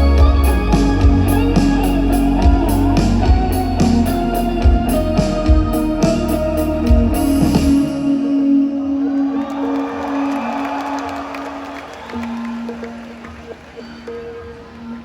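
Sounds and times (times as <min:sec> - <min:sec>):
live band playing loudly: 0:00.0 - 0:08.2.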